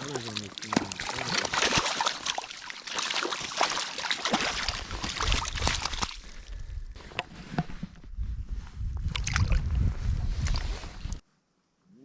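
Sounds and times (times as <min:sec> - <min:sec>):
water splashing and dripping: 0:00.0 - 0:06.4, 0:09.1 - 0:09.8.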